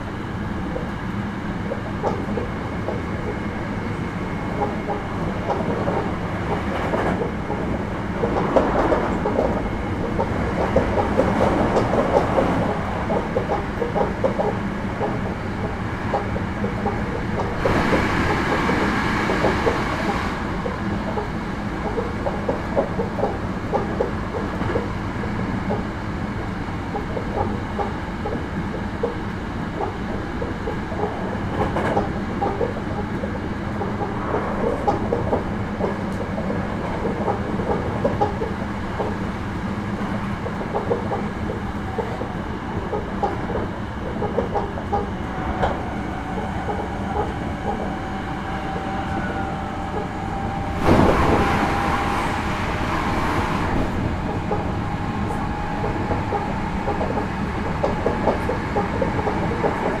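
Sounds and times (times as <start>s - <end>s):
train rumble: 0.0s - 60.0s
wheels clicking over rail joints: 4.5s - 20.0s
sudden rush of noise: 17.6s - 20.7s, 50.5s - 55.4s.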